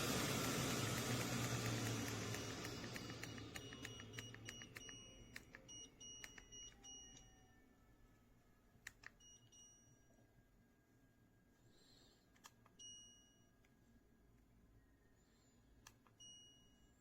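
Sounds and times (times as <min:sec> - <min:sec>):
fan airflow hiss: 0:00.0 - 0:04.2
electronic beeps: 0:02.3 - 0:07.8.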